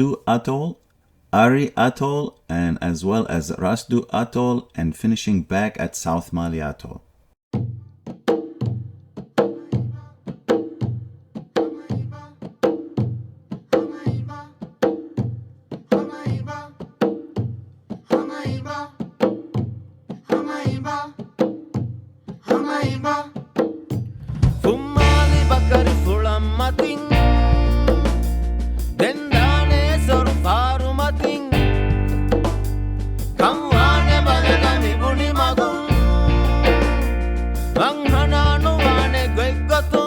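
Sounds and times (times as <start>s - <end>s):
full music arrangement with deep bass: 25.0s - 40.0s.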